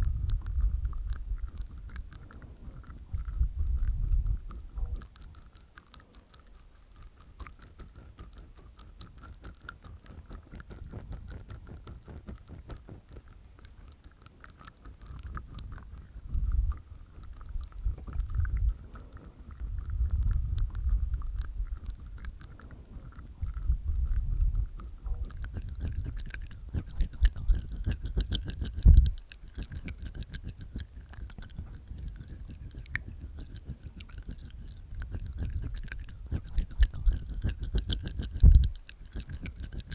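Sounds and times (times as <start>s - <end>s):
mouth clicks: 0.0s - 39.9s
low mouth thumps: 15.0s - 39.9s.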